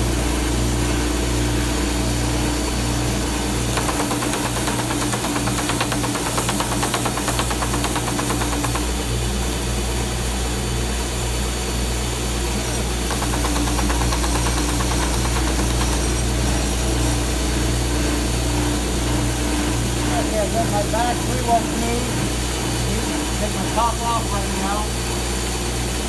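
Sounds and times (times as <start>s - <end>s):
shop dust vacuum running: 0.0s - 26.0s
stationary sander running: 2.2s - 10.2s, 12.4s - 25.6s
wooden box being sanded: 3.7s - 8.9s, 13.1s - 16.2s.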